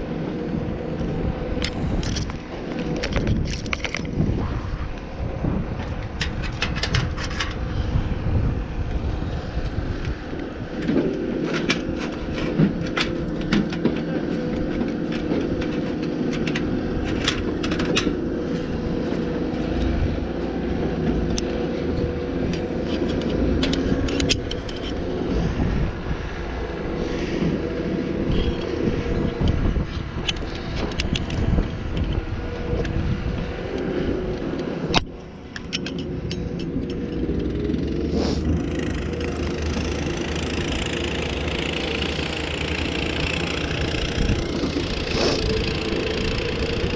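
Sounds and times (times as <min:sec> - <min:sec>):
gusting wind: 0:00.0 - 0:46.9
motor rumbling: 0:00.0 - 0:46.9
metallic clicks and scrapes: 0:01.6 - 0:04.2, 0:05.8 - 0:07.8, 0:10.7 - 0:20.2, 0:21.0 - 0:25.7, 0:28.3 - 0:33.0, 0:33.6 - 0:46.9.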